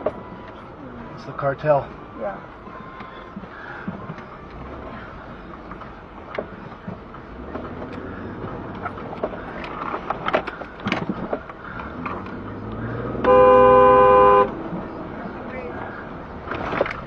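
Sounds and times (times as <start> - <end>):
vehicle noise: 0.0 - 17.0
loud horn blast: 13.0 - 14.6.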